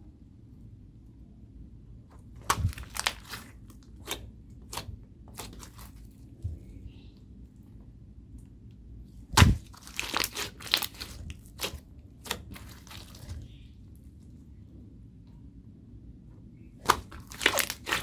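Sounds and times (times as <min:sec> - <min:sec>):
slime crackling pops: 0:02.4 - 0:05.9, 0:09.3 - 0:13.4, 0:16.8 - 0:18.0.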